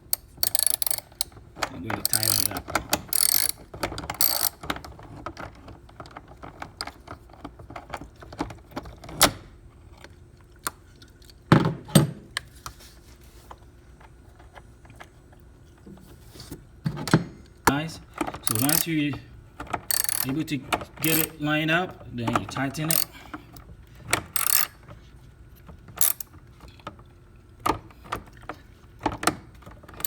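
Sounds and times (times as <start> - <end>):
ratchet wrench clicking: 0.1 - 1.3, 2.0 - 4.6, 18.4 - 18.9, 19.9 - 20.3, 21.0 - 21.4, 22.9 - 23.1, 24.4 - 24.8, 26.0 - 26.3
metal tools clinking: 18.4 - 19.0.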